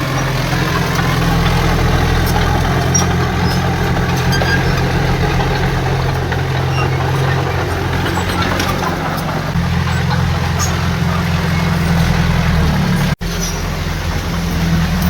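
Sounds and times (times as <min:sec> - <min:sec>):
heavy diesel machinery running: 0:00.0 - 0:15.0.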